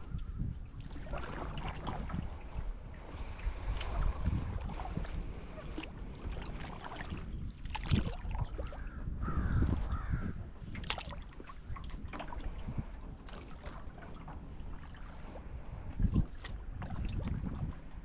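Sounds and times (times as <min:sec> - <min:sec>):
water splashing off paddle: 0:00.8 - 0:02.8, 0:03.4 - 0:08.6.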